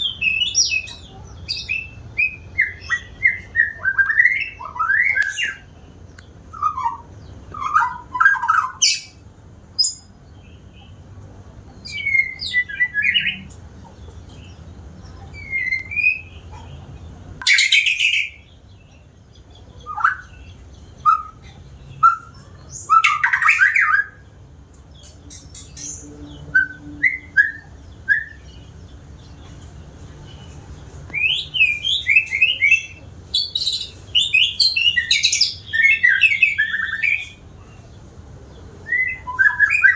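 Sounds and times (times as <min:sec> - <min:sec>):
bird singing whistled phrases: 0:00.0 - 0:05.7, 0:06.5 - 0:09.2, 0:11.8 - 0:13.5, 0:15.4 - 0:16.4, 0:17.4 - 0:18.5, 0:21.0 - 0:24.2, 0:25.6 - 0:28.6, 0:31.1 - 0:37.4, 0:38.8 - 0:39.9.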